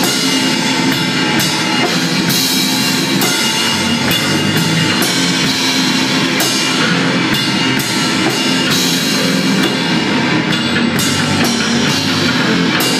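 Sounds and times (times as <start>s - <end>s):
crashing cymbals: 0.0s - 12.9s
rock band jamming: 0.0s - 12.9s.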